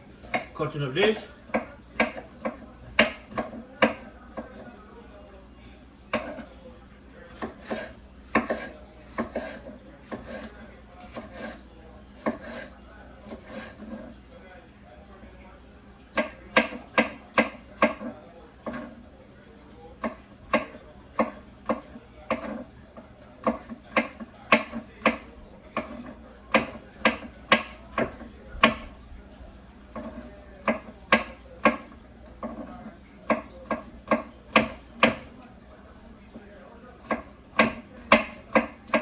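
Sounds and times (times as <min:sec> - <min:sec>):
knife chopping on wooden board: 0:00.2 - 0:00.6, 0:01.5 - 0:04.6, 0:06.1 - 0:06.5, 0:07.3 - 0:11.6, 0:12.2 - 0:14.1, 0:16.1 - 0:19.0, 0:20.0 - 0:22.7, 0:23.4 - 0:28.9, 0:29.9 - 0:35.4, 0:37.0 - 0:39.0.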